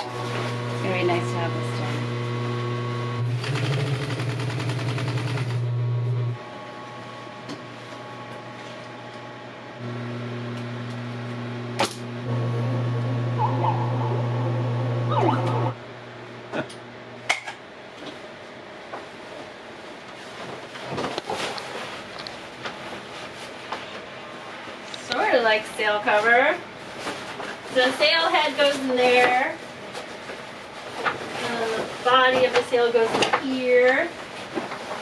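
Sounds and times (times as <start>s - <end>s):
sewing machine stitching: 3.2s - 5.7s.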